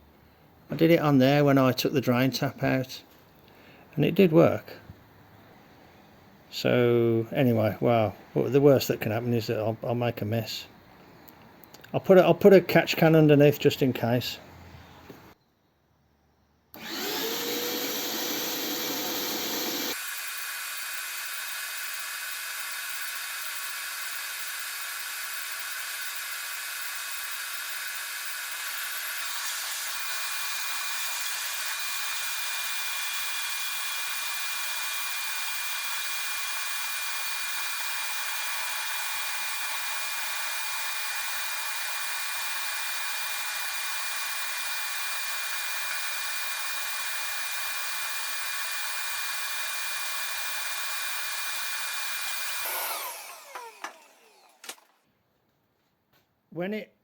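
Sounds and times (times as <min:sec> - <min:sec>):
vacuum motor whine: 0:16.8 - 0:54.9.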